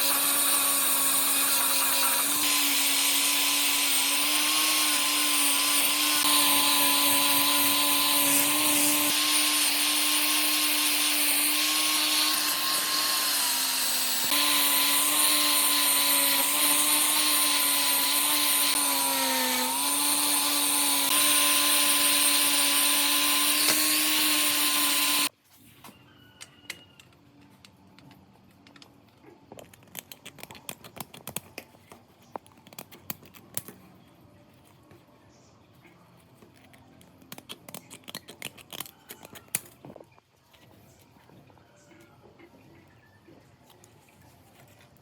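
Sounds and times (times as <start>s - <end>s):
power tool motor whining: 0.0s - 25.3s.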